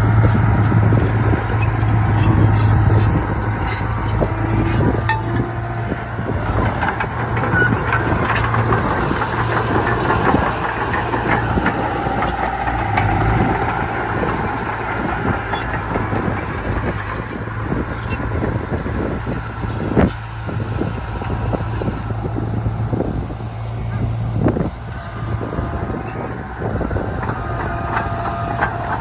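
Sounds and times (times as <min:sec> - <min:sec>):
diesel machinery engine drone: 0:00.0 - 0:29.0
metal clattering and clanking: 0:00.2 - 0:17.4, 0:25.0 - 0:29.0.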